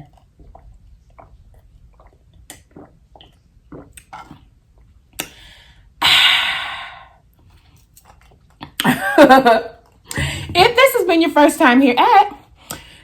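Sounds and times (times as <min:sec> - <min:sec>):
wet chewing and lip smacks: 0:00.0 - 0:05.4
breathy exhale: 0:05.4 - 0:07.2.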